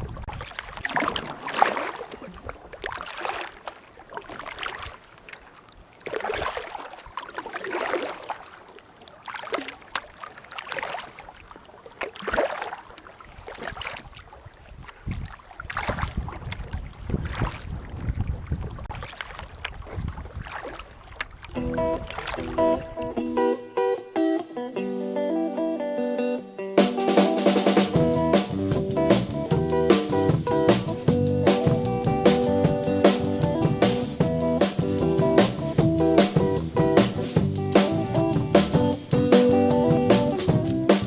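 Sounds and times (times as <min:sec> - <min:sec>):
wind rumbling on microphone: 0:00.0 - 0:01.4, 0:13.3 - 0:23.2
kayak paddle splashing water: 0:00.0 - 0:23.3.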